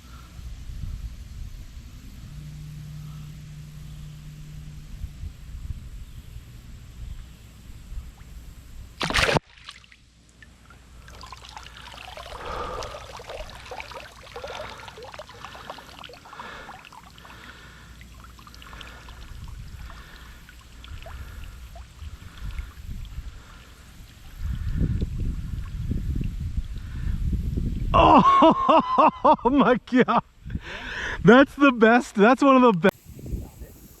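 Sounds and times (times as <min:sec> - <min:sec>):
water splashing and trickling: 0:07.6 - 0:27.2
brief loud water rush: 0:09.0 - 0:09.8.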